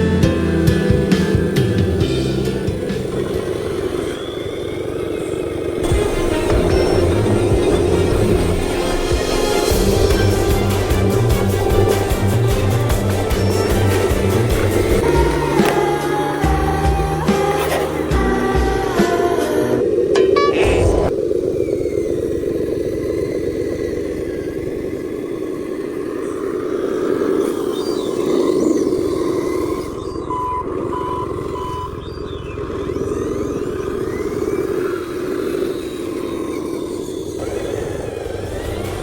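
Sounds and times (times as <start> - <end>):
toy truck motor drone: 0.7 - 39.0
short beeps: 20.2 - 21.1.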